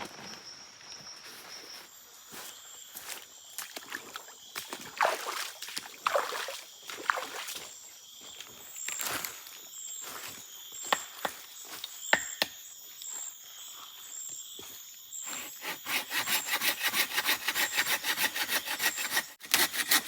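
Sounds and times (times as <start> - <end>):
rustling and crunching on forest floor: 5.8 - 12.1.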